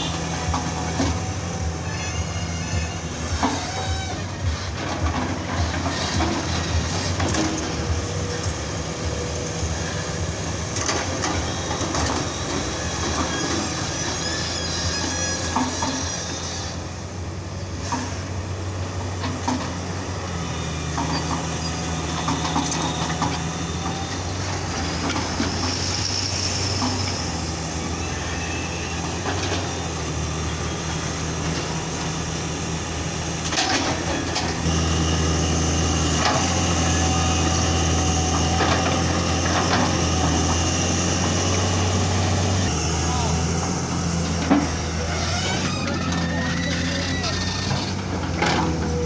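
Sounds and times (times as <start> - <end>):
diesel loader engine working: 0.0 - 49.0.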